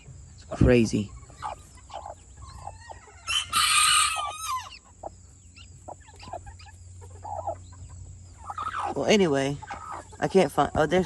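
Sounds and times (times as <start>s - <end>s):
chickens clucking: 0.0s - 11.0s
loud harsh chicken call: 2.6s - 4.9s.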